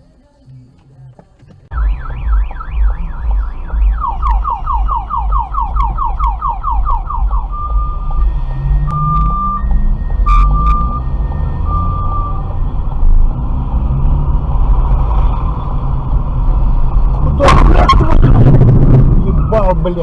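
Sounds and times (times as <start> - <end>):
car alarm: 1.7 - 13.2
low rumble: 1.7 - 20.0.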